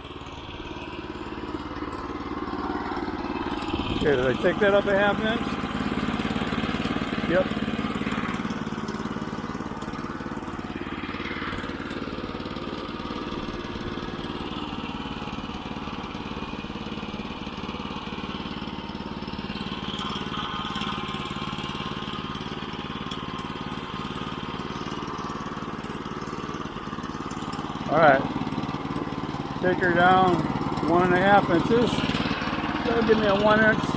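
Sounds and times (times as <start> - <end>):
sawmill engine running: 0.0 - 33.9.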